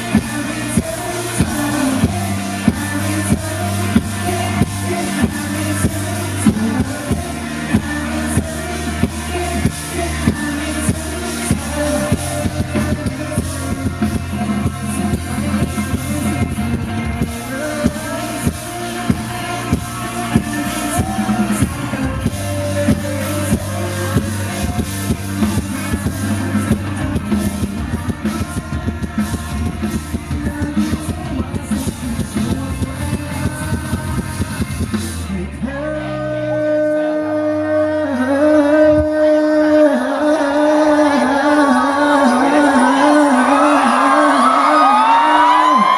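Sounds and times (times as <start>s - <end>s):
drum kit beating: 0.0s - 35.4s
live band playing: 0.0s - 45.9s
person singing: 0.0s - 45.9s.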